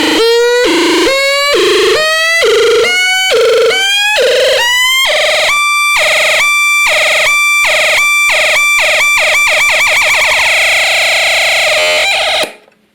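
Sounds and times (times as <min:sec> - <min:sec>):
pulsing electronic beep: 0:00.0 - 0:04.7
rising synth pitch sweeps: 0:00.0 - 0:10.4.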